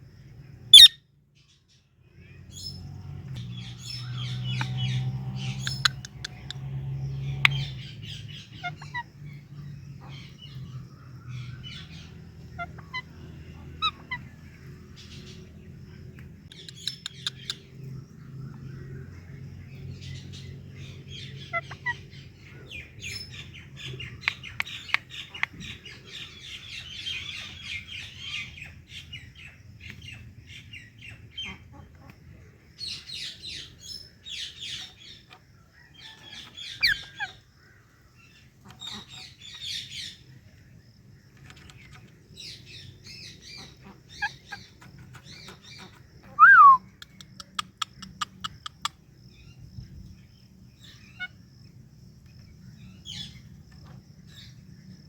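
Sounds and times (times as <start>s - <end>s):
parakeets chirping: 0.7s - 1.0s, 3.6s - 17.9s, 19.6s - 29.4s, 36.4s - 37.4s, 38.2s - 40.4s, 41.4s - 46.1s
parakeet squawk: 0.8s - 1.0s.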